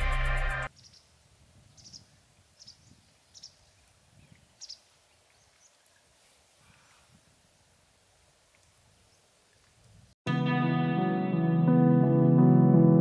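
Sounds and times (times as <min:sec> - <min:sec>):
small bird chirping: 0:00.8 - 0:01.1, 0:01.7 - 0:05.8.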